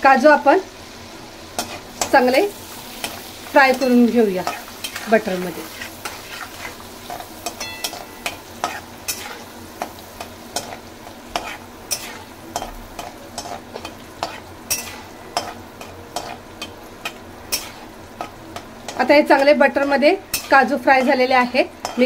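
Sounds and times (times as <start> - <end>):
cashews sizzling in butter: 0.0 - 22.0
spatula scraping metal pan: 1.6 - 9.9, 10.6 - 18.3.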